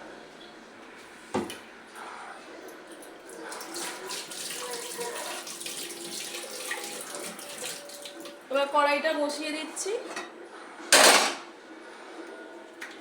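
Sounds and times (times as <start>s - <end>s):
tap water running into sink: 3.5s - 8.4s.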